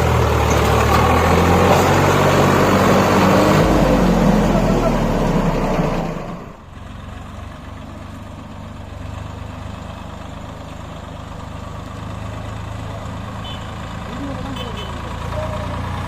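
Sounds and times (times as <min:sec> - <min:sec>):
tractor diesel engine idling: 0:00.0 - 0:16.0.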